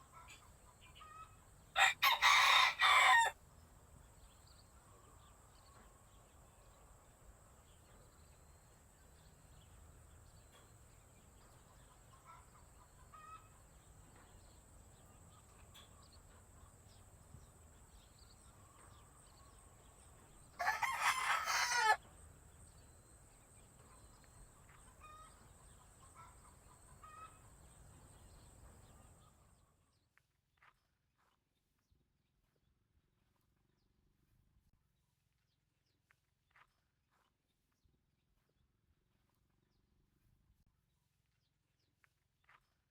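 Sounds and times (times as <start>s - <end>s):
rooster crowing: 1.8s - 3.4s, 20.6s - 22.0s.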